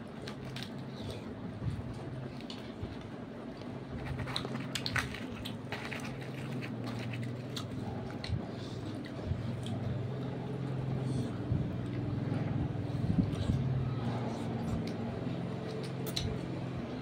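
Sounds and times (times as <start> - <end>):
steady low hum: 0.0 - 17.0
chewing and wet mouth clicks: 15.7 - 16.3.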